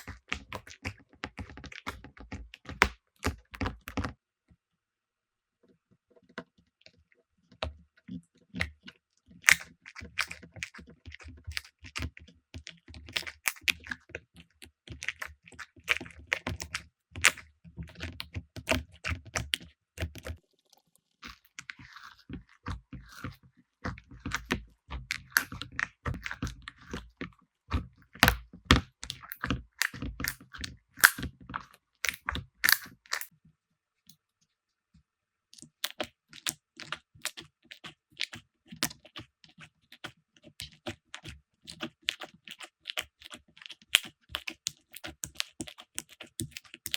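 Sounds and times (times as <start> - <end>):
slime crackling and popping: 18.0 - 31.4, 32.0 - 33.3, 39.9 - 46.9.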